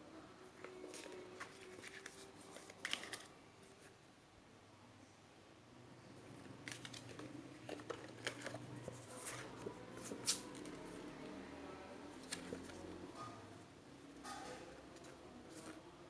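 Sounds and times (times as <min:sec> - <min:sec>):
packaging clicks and rustles: 0:00.6 - 0:03.3, 0:06.6 - 0:10.9.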